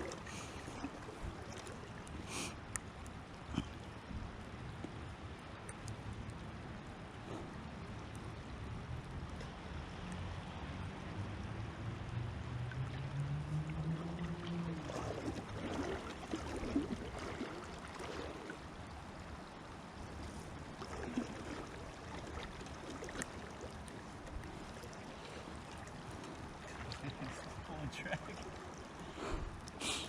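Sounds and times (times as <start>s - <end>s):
river water rushing: 0.0s - 2.6s, 11.8s - 30.0s.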